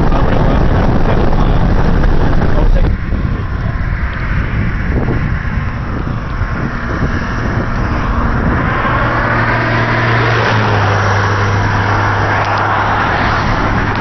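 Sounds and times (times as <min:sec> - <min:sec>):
car engine hum: 0:00.0 - 0:14.0
tyre and road noise: 0:00.0 - 0:14.0.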